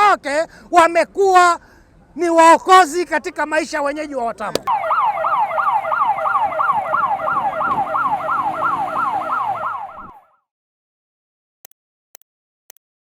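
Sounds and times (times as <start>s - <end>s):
fire engine siren yelp: 4.7s - 10.4s.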